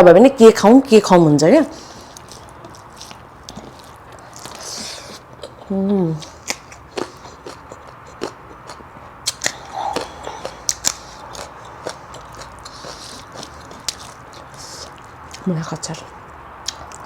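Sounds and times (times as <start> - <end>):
crunchy chewing: 1.8 - 15.5
wet mouth clicks: 4.6 - 14.0.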